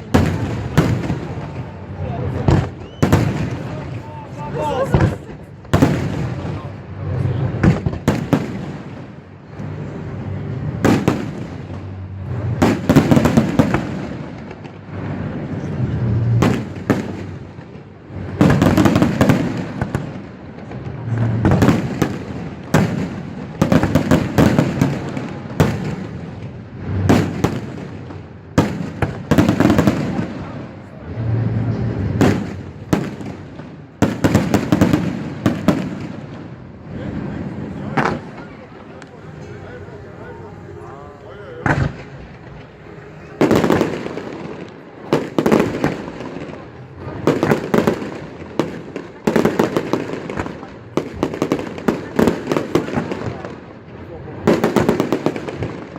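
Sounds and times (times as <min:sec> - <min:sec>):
low rumbling: 0:00.0 - 0:23.6, 0:26.2 - 0:47.4
fireworks bangs: 0:00.0 - 0:55.9.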